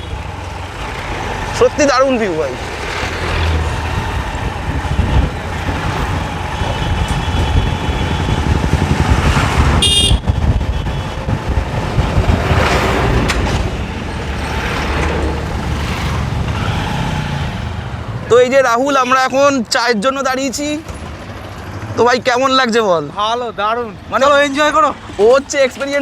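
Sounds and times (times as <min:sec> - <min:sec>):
motorcycle engine running: 0:00.0 - 0:13.2
road and wind noise: 0:00.0 - 0:26.0
vehicle horn toot: 0:09.8 - 0:11.2.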